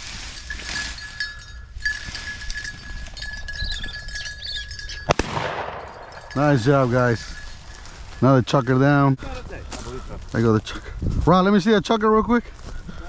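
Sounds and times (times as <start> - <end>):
dog collar bell tinkling: 0.3 - 10.3.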